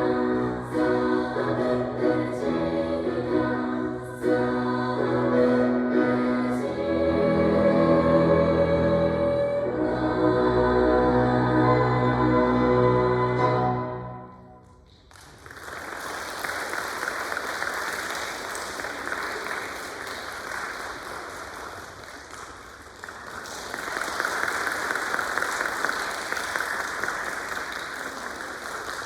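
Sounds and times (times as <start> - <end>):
choir singing final chord: 0.0 - 14.6
audience applause: 15.1 - 29.0.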